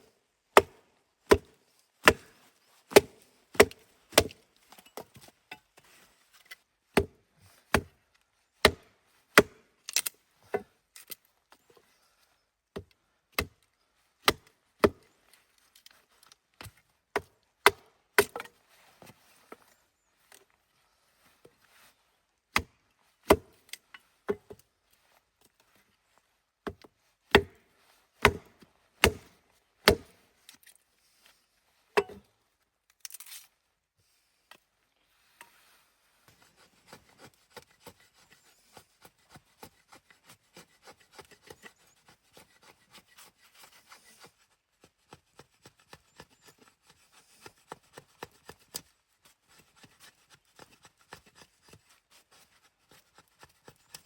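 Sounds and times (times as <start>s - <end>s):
wood being chopped: 0.6s - 2.3s, 2.9s - 4.4s, 7.0s - 7.9s, 8.6s - 10.7s, 14.2s - 15.0s, 16.6s - 18.5s, 22.5s - 22.7s, 23.3s - 23.6s, 26.6s - 30.2s.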